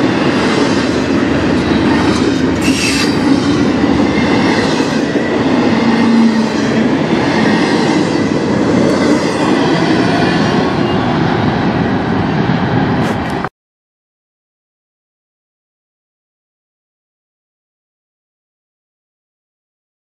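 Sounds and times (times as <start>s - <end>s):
freight train wheels rumbling on rails: 0.0s - 13.5s.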